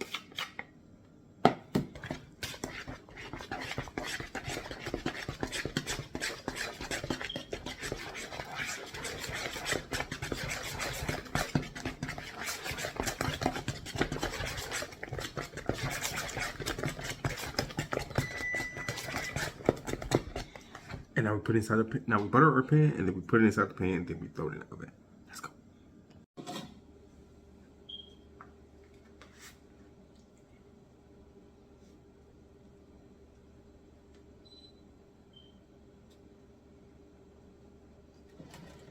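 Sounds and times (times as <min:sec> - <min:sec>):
utensil scraping a bowl: 0:00.0 - 0:00.6, 0:02.0 - 0:21.0.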